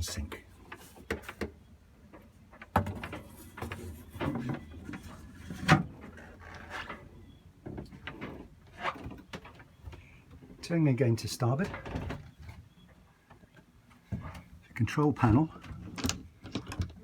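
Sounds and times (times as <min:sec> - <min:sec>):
wooden knocks and clunks: 0:01.0 - 0:06.9, 0:13.4 - 0:14.5, 0:15.2 - 0:17.0.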